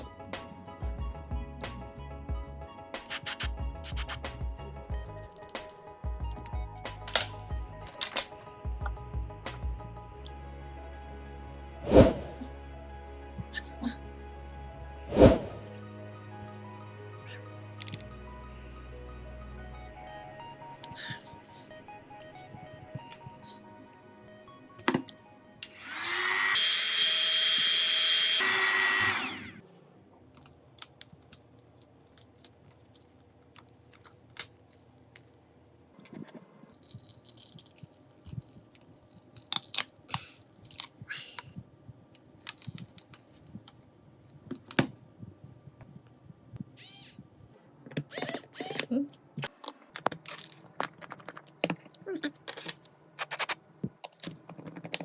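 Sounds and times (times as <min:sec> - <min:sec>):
small electric tool whining: 0:25.7 - 0:29.6, 0:48.1 - 0:48.9.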